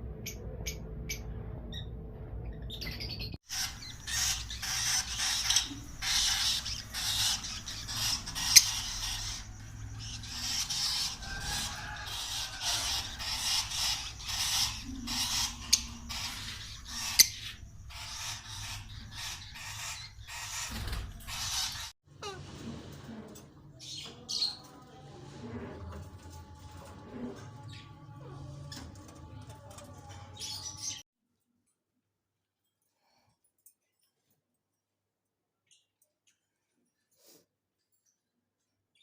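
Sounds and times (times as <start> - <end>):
lovebirds chattering and squawking: 3.5 - 22.4.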